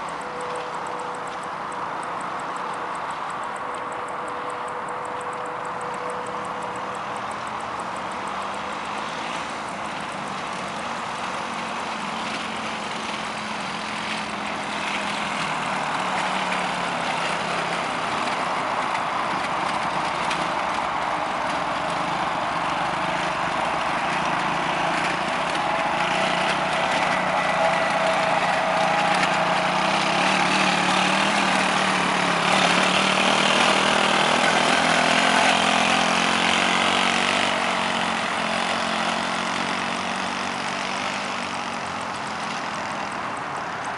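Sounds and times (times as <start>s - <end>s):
quad bike engine running: 0.0s - 43.9s.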